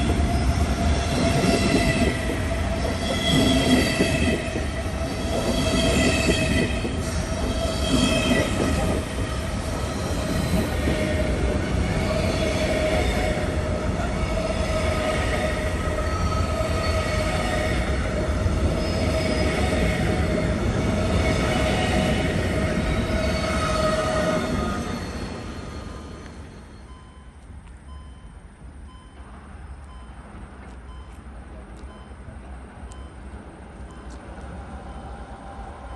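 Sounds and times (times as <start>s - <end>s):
wheel squeal: 0.0s - 9.0s, 22.8s - 26.9s
train rumbling on rails: 0.0s - 35.9s.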